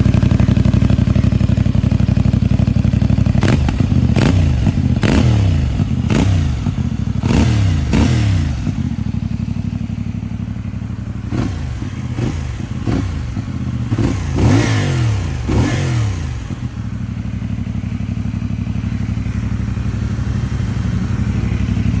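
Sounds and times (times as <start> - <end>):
motorcycle engine revving and idling: 0.0 - 22.0.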